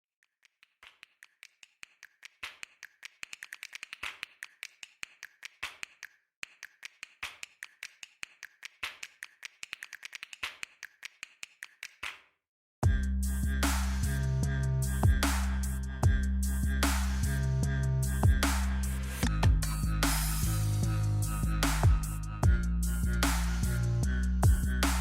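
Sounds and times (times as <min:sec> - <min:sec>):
fast sharp clicks: 0:00.4 - 0:12.1.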